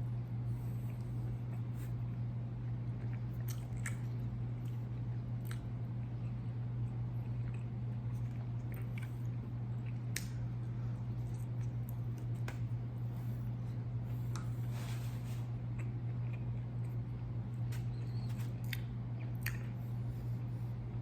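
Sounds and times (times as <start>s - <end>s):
steady low hum: 0.0s - 21.0s
person chewing: 2.6s - 6.4s, 7.2s - 10.4s, 18.3s - 19.9s.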